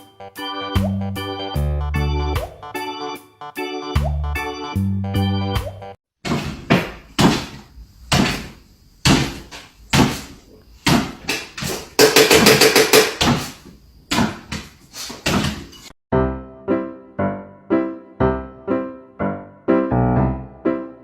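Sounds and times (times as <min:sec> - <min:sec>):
sharp knocks: 0:06.2 - 0:15.7.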